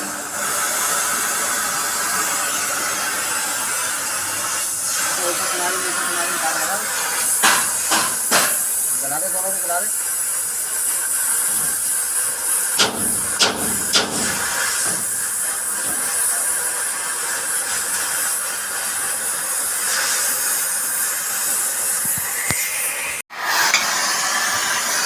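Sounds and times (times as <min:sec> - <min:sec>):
welding hiss: 0:00.0 - 0:25.0
sharp metal knocks: 0:07.4 - 0:08.6, 0:12.8 - 0:15.2.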